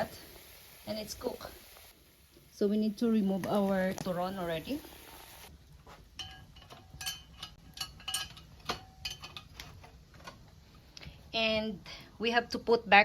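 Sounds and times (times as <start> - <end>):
metal utensil clinking on frying pan: 6.2 - 9.6.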